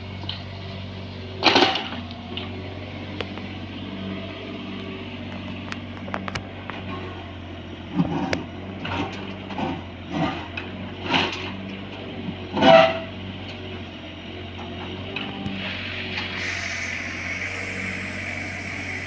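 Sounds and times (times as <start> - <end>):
excavator diesel engine running: 0.0 - 19.0
harsh excavator bucket noises: 5.2 - 7.2, 7.8 - 11.7, 14.6 - 19.0.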